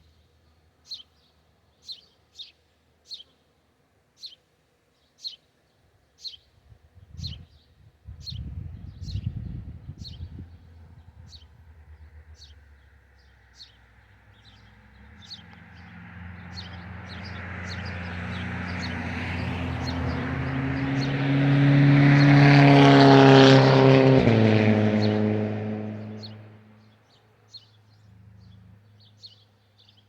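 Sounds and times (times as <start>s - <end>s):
small birds chirping: 0.0s - 3.5s, 4.2s - 21.2s, 26.0s - 30.0s
vehicle driving past: 9.0s - 27.0s, 27.9s - 29.3s.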